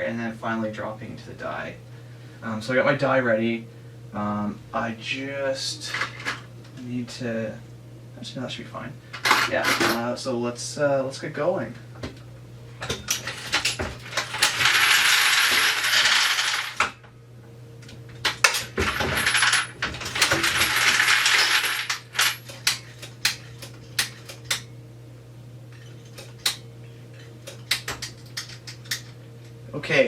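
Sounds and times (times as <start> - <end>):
motor hum: 10.6 - 30.0.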